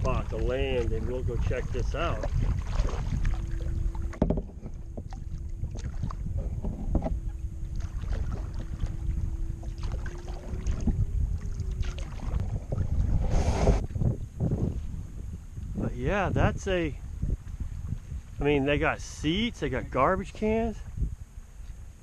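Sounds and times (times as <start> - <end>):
faint steady hum: 0.0 - 22.0
wind on microphone: 0.0 - 22.0
paddle splashing in water: 2.1 - 13.9
paddle knocking on hull: 2.2 - 9.0.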